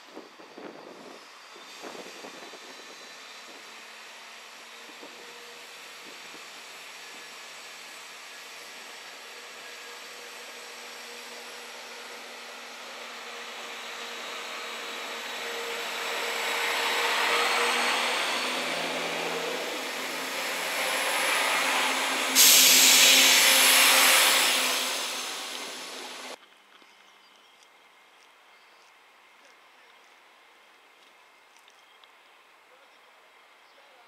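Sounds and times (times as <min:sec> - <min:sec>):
diesel train engine and wheels: 0:00.0 - 0:26.4.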